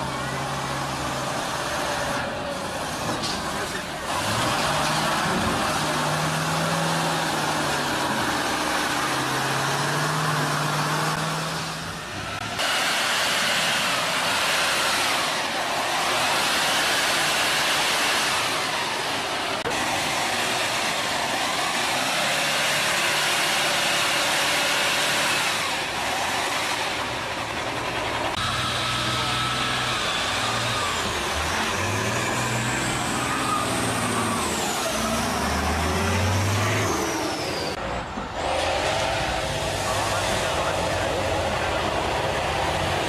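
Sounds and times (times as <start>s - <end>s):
diesel truck engines revving: 0.0s - 43.0s.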